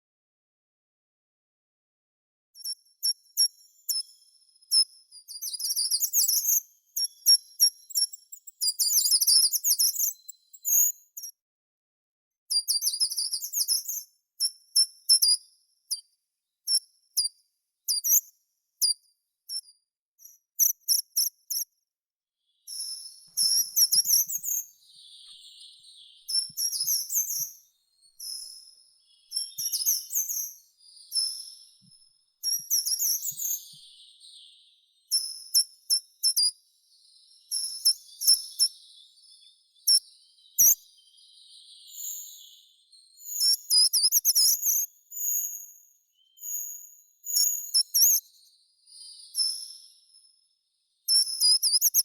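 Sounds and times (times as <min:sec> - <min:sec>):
songbirds singing: 0:22.5 - 0:52.0.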